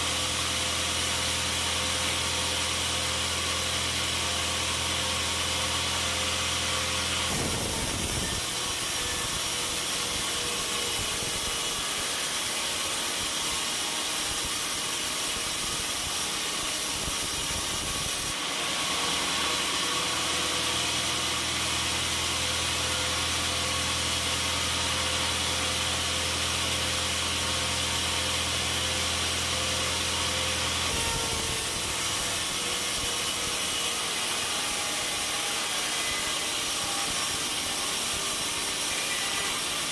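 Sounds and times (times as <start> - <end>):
saw cutting through log: 0.0 - 39.9
low motor hum: 7.3 - 9.6.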